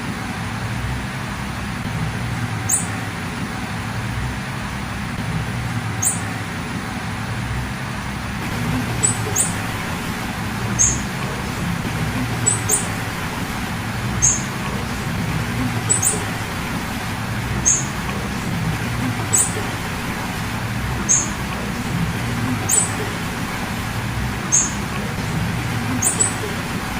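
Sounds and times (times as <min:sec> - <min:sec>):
background hum and hiss: 0:00.0 - 0:26.9
bird high short calls: 0:02.6 - 0:03.0, 0:06.0 - 0:06.3, 0:08.4 - 0:11.6, 0:12.2 - 0:14.9, 0:15.6 - 0:16.7, 0:17.6 - 0:18.0, 0:21.0 - 0:21.4, 0:24.5 - 0:24.8.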